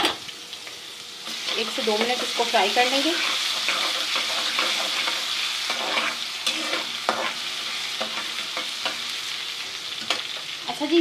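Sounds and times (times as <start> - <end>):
onion paste sizzling in ghee: 0.0 - 11.0
spoon scraping pan: 1.3 - 9.1.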